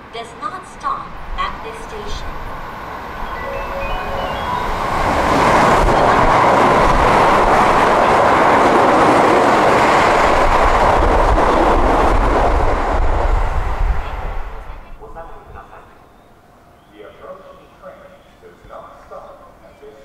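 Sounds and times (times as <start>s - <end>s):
train wheels rushing on rails: 1.1s - 14.8s.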